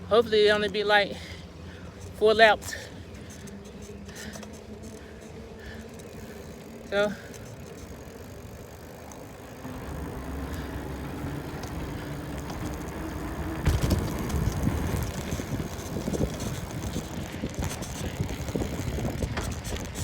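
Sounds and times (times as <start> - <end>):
phone holder rattling: 9.9 - 20.0
wind on microphone: 13.6 - 20.0.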